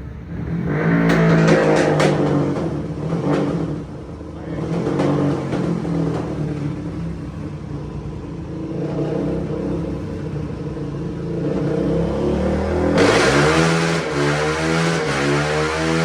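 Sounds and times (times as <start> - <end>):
dirt bike engine revving: 0.2 - 7.1, 11.2 - 16.0.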